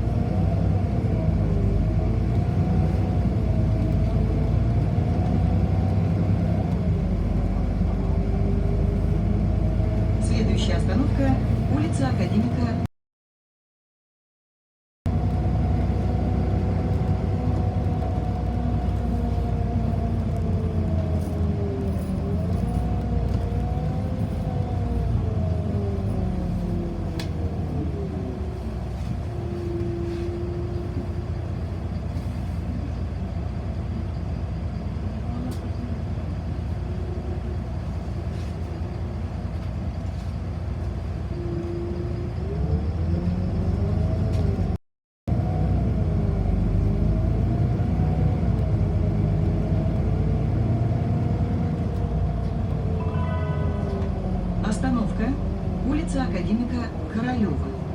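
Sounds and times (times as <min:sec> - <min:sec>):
bus low rumble: 0:00.0 - 0:12.9, 0:15.1 - 0:57.9
bus whine changing pitch: 0:15.1 - 0:57.9.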